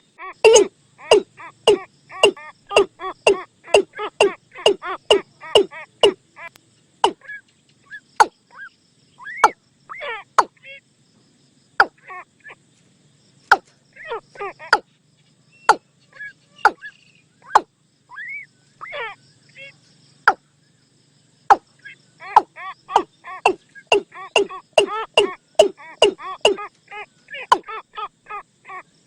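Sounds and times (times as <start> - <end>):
bird calls with sharp clicks: 0.4 - 9.6, 11.8 - 12.0, 13.4 - 19.0, 21.5 - 27.8.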